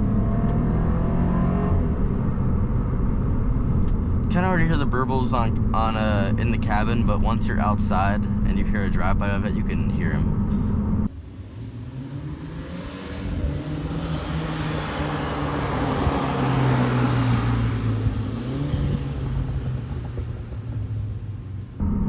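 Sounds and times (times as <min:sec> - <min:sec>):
car driving past: 0:10.4 - 0:21.8.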